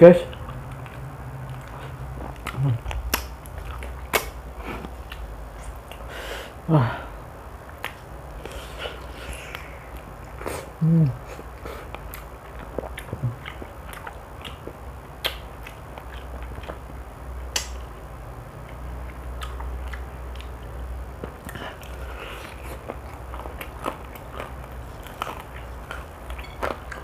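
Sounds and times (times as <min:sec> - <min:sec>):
steady low hum: 0:00.0 - 0:27.0
chewing crispy fried chicken: 0:00.2 - 0:06.1, 0:07.6 - 0:17.8, 0:18.5 - 0:27.0
wet mouth sounds: 0:00.3 - 0:06.1, 0:07.7 - 0:16.9.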